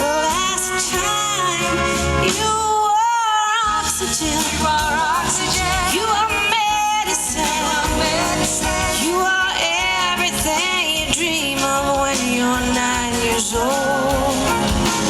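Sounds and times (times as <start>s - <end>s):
band accompaniment: 0.0s - 15.0s
woman singing: 0.0s - 15.0s.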